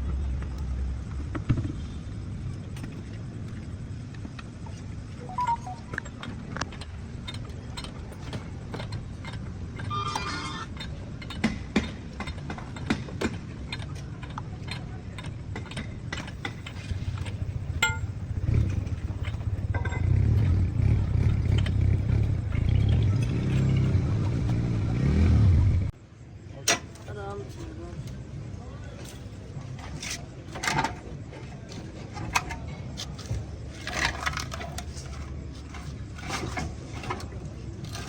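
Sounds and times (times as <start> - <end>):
low steady rumble: 13.5 - 26.0
metal tools clinking: 16.2 - 21.8.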